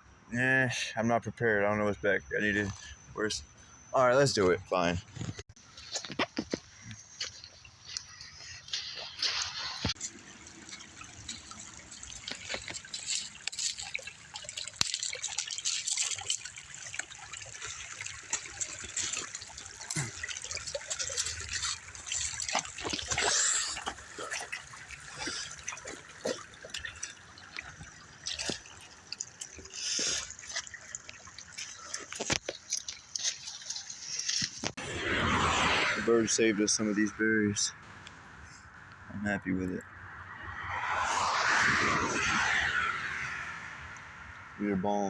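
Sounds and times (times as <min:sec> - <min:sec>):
stream trickling and dripping: 0:02.5 - 0:34.8, 0:42.7 - 0:45.0.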